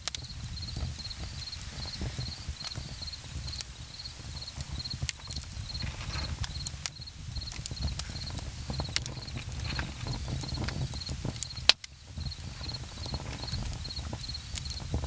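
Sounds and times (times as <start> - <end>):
campfire crackling: 0.0 - 15.0
cricket chirping: 0.0 - 15.0.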